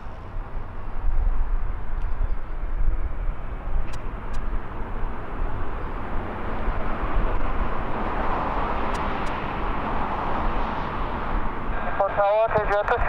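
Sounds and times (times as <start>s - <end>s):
jet engine rushing: 2.8s - 13.0s.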